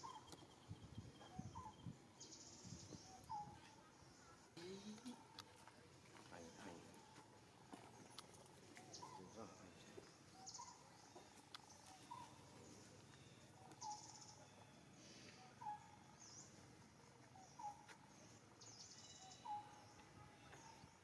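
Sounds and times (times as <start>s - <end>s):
forest ambience: 0.0s - 21.0s
faint bird call: 8.8s - 10.9s, 11.8s - 16.6s.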